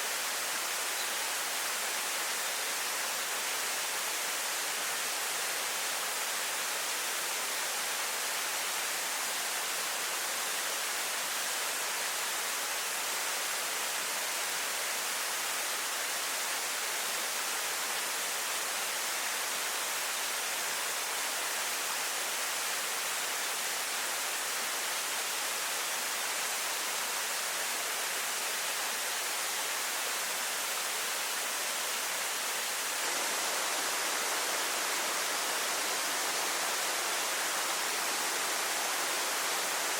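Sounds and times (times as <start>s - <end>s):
waterfall rushing: 22.6s - 39.9s.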